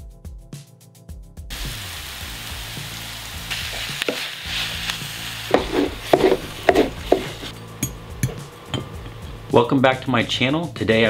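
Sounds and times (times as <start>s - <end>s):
food sizzling in hot oil: 1.5s - 8.8s
short knocks and scrapes: 5.5s - 7.6s.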